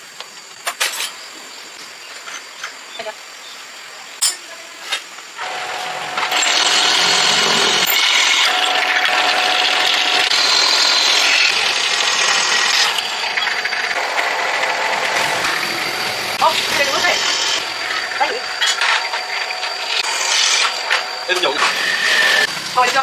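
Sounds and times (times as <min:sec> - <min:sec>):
power tool hissing: 0:05.4 - 0:23.0.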